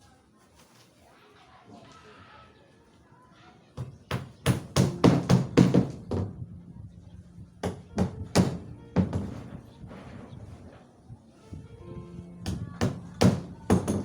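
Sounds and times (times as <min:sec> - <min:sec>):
hammer blows on wood: 0:03.8 - 0:06.4, 0:07.6 - 0:09.6, 0:12.4 - 0:14.0.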